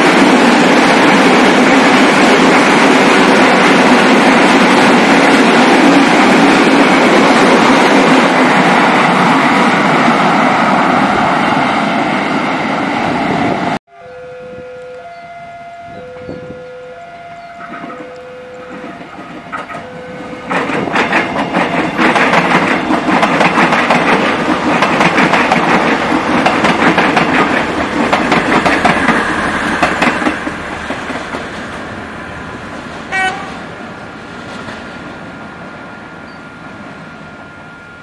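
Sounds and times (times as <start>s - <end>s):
brief high tone: 13.9s - 20.5s
train wheels clattering over joints: 20.5s - 31.8s.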